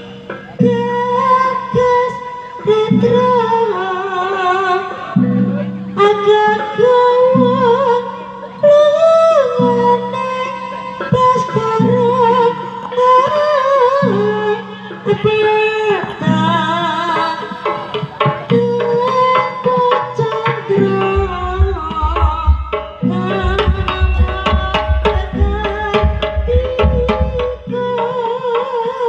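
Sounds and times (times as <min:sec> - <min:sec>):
wavering melody: 0:17.2 - 0:28.1
hand drumming: 0:17.4 - 0:28.1
deep drum strokes: 0:20.8 - 0:27.7.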